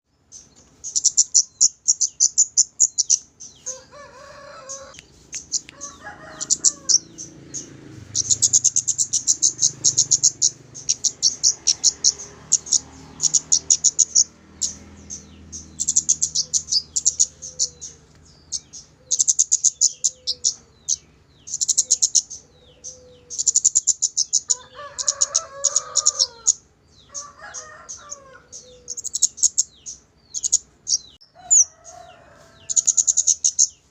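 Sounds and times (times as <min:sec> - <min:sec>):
rapid high bird chirps: 0:00.2 - 0:33.9
lower rooster-like call: 0:03.6 - 0:05.0, 0:05.6 - 0:07.2, 0:24.5 - 0:29.0, 0:31.3 - 0:33.3.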